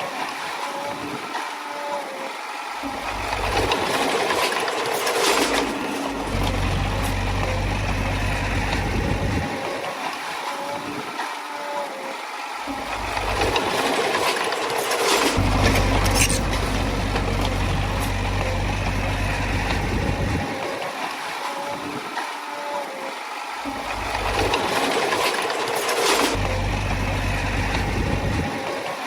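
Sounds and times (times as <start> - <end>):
bulldozer diesel engine: 2.8 - 9.8, 12.7 - 20.8, 23.7 - 29.0
metallic clanks: 13.0 - 20.4.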